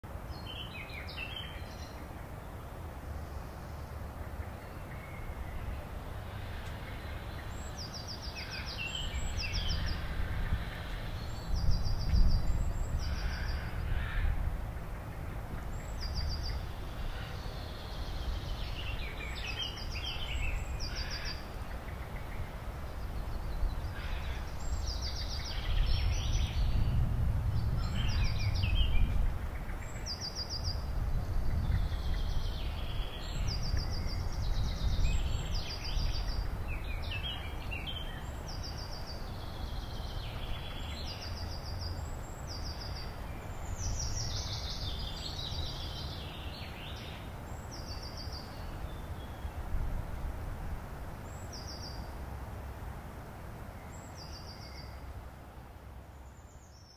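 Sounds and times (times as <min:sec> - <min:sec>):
small birds singing trills: 0:00.2 - 0:49.8, 0:51.2 - 0:52.2, 0:53.7 - 0:55.2, 0:56.0 - 0:56.9
steady low rumble: 0:25.4 - 0:30.0.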